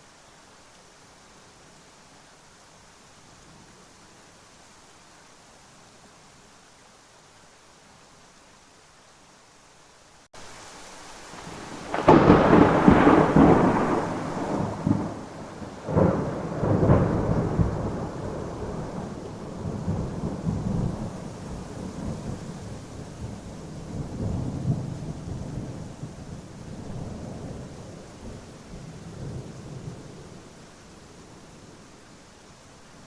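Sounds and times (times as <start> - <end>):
steady rain: 0.0 - 33.0
thunder rolling: 11.4 - 22.3.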